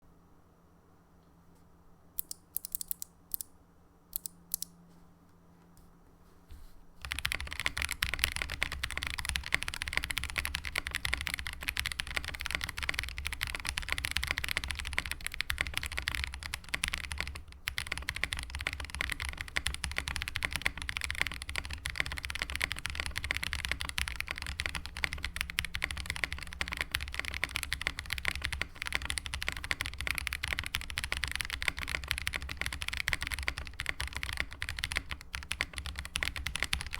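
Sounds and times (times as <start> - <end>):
mechanical keyboard typing: 2.2 - 3.5, 4.2 - 4.7, 7.0 - 36.9.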